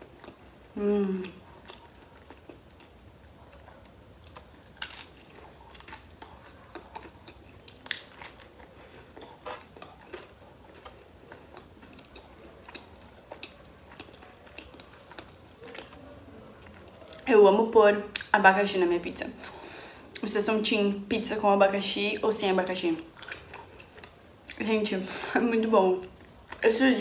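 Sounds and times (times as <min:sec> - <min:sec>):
chewing pizza crust crunches: 0:00.0 - 0:17.3, 0:23.0 - 0:24.6.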